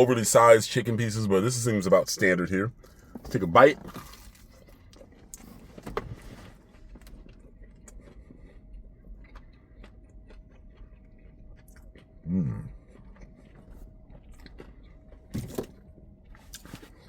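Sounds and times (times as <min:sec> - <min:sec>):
crunchy bite of fried chicken: 0:06.8 - 0:17.0
chewing clicks: 0:07.0 - 0:15.3.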